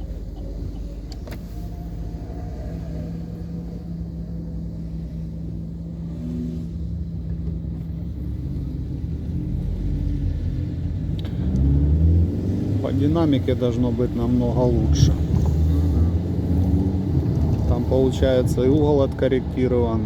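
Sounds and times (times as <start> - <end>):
car engine running: 0.0 - 11.5.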